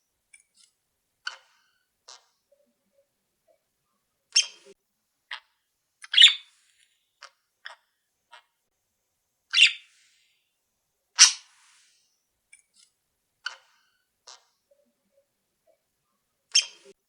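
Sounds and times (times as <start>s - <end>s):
faint bird chirps: 1.2s - 8.5s, 9.5s - 10.4s, 13.4s - 17.0s
cage birds calling: 4.4s - 4.8s, 6.0s - 6.5s, 9.5s - 9.9s, 11.2s - 11.5s, 16.5s - 17.0s.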